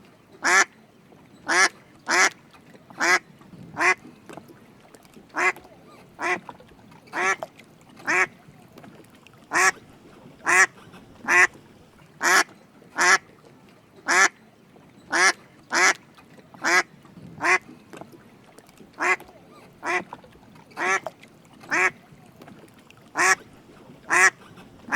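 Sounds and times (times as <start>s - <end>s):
duck quacking: 1.5s - 2.3s, 3.8s - 4.0s, 5.4s - 5.6s, 6.2s - 6.4s, 7.2s - 7.4s, 8.1s - 8.3s, 9.5s - 9.8s, 10.4s - 11.6s, 12.2s - 13.2s, 14.1s - 14.3s, 15.1s - 16.0s, 16.6s - 16.8s, 17.4s - 17.6s, 19.0s - 19.2s, 19.8s - 20.0s, 20.8s - 21.0s, 21.7s - 22.0s, 23.2s - 23.4s, 24.1s - 24.9s.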